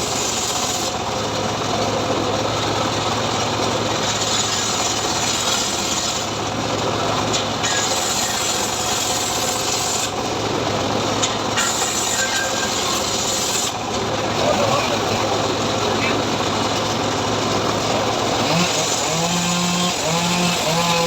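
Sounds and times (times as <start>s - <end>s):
saw rasping through wood: 4.0s - 6.4s, 7.6s - 10.2s, 11.5s - 13.8s, 17.7s - 21.0s.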